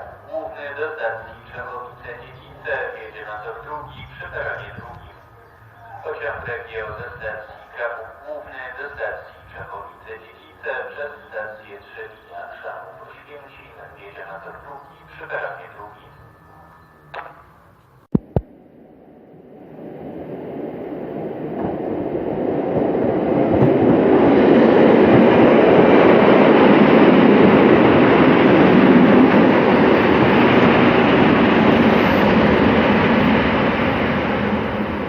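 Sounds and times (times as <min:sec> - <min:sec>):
train wheels rumbling on rails: 0:20.3 - 0:35.0.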